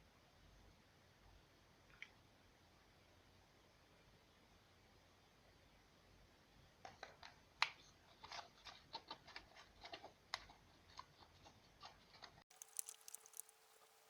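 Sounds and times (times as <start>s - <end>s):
light irregular clicks and taps: 12.5s - 14.0s.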